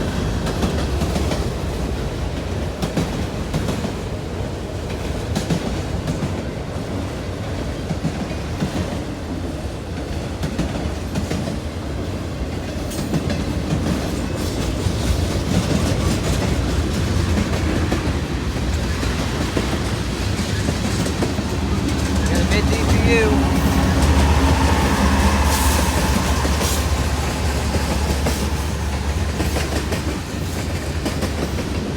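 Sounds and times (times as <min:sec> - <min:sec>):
train low rumble: 0:00.0 - 0:31.9
wheels clicking over rail joints: 0:12.7 - 0:31.9.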